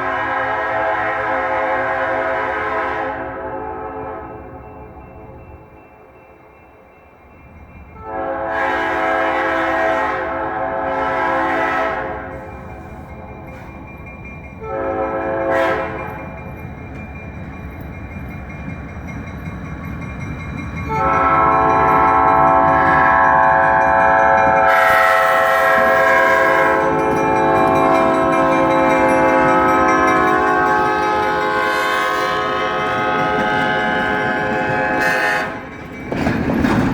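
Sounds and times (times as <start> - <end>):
locomotive air horn blasts: 0.0 - 4.5, 8.0 - 13.8, 14.6 - 16.3, 20.9 - 35.7.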